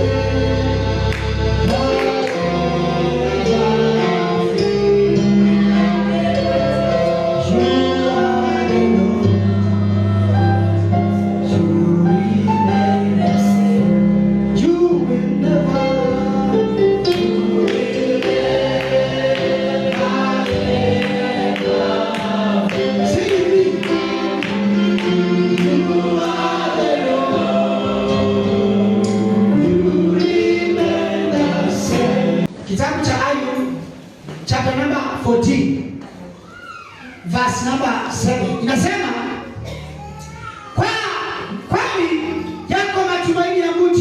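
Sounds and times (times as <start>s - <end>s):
rhythmic percussion: 0.0s - 11.8s, 16.6s - 32.9s
choir singing gospel music: 0.0s - 34.2s.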